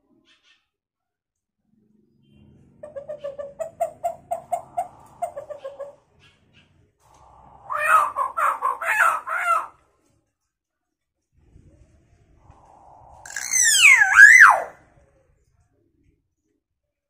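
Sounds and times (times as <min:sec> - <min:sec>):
myna bird clucking: 0:02.8 - 0:09.7
myna bird crow-like call: 0:07.2 - 0:09.8, 0:12.6 - 0:14.8.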